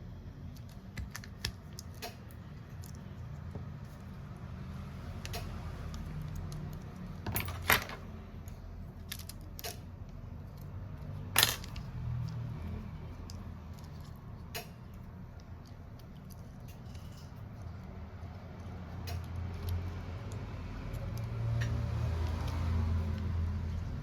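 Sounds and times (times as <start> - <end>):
small tools clicking and clinking: 6.2 - 8.1, 11.4 - 12.4.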